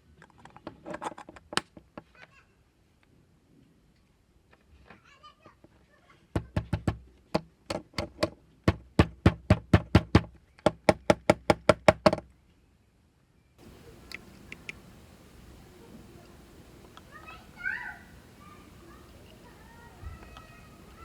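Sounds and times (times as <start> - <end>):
faint clicks: 13.6 - 21.0.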